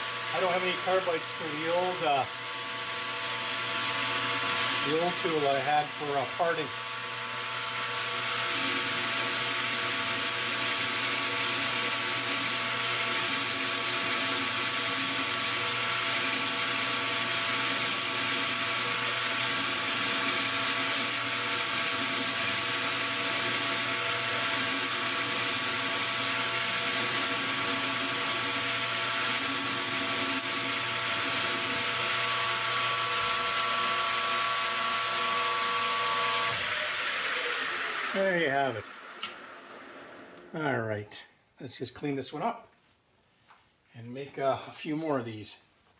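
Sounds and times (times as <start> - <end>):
metal lathe whine: 0.0 - 40.4.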